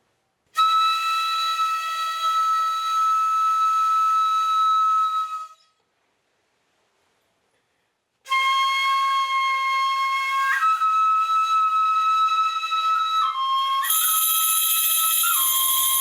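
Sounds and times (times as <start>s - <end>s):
flute playing long notes: 0.6s - 5.6s, 8.3s - 16.0s.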